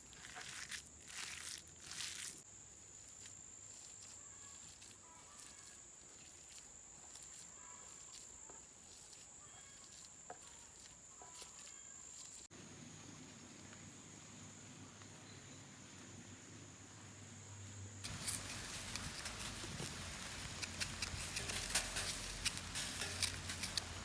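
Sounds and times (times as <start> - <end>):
crunch: 0.0 - 12.5, 18.0 - 24.0.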